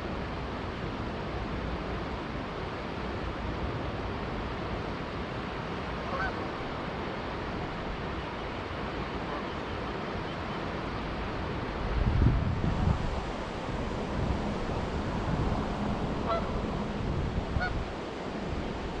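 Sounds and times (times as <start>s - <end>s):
river flowing: 0.0s - 19.0s
goose honk: 6.0s - 6.4s, 16.2s - 16.6s, 17.6s - 17.8s.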